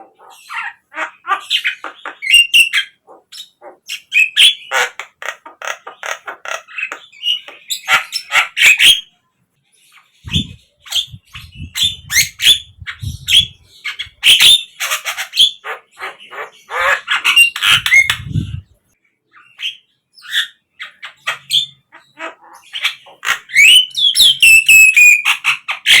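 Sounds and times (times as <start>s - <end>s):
myna squawks and chattering: 0.0s - 9.0s, 10.2s - 18.8s, 20.8s - 23.9s.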